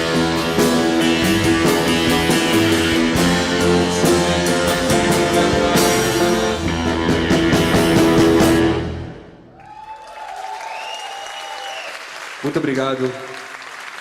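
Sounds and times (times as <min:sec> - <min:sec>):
live rock band playing: 0:00.0 - 0:09.4.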